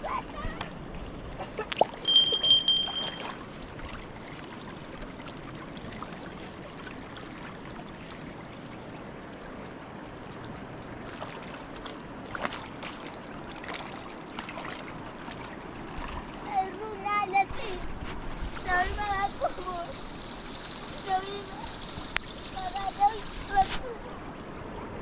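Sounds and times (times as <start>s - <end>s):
flowing stream water: 0.8s - 17.1s.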